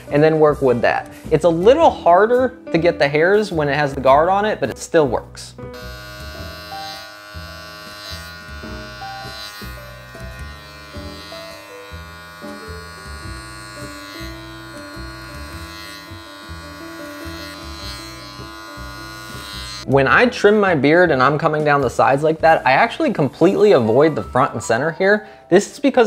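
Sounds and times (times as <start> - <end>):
electric beard trimmer buzzing: 5.7 - 20.8.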